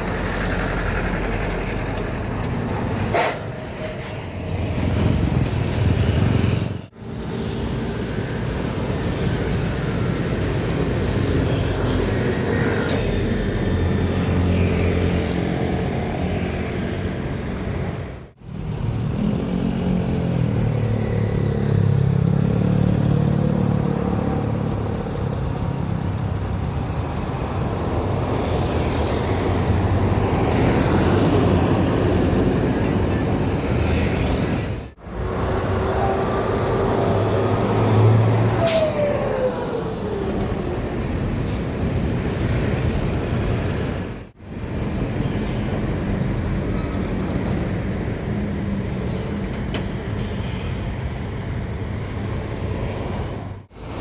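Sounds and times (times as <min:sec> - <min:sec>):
diesel trucks passing: 0:00.0 - 0:54.0
traffic noise: 0:00.0 - 0:54.0.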